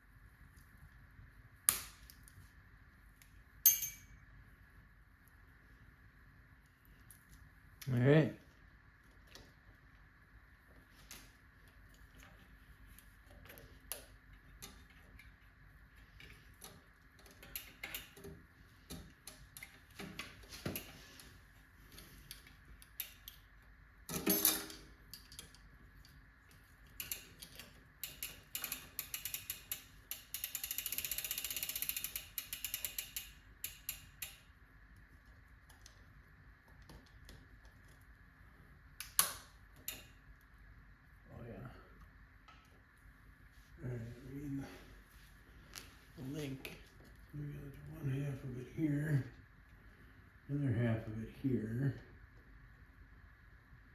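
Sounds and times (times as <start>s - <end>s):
bicycle chain clicks and rattles: 16.1s - 18.3s, 21.9s - 23.5s, 26.8s - 34.5s, 39.0s - 40.2s
rapid ratcheting clicks: 26.8s - 34.5s.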